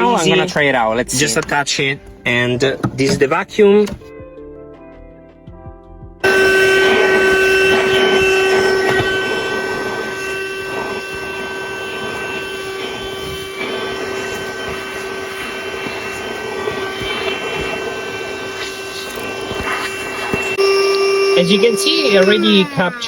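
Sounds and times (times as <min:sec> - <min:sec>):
car vacuum cleaner running: 0:06.2 - 0:23.0.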